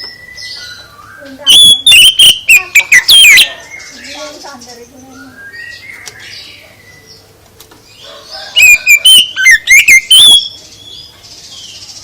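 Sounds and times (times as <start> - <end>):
faint bird chirps: 0.0 - 7.3
songbird whistling song: 0.0 - 7.3, 7.9 - 12.0.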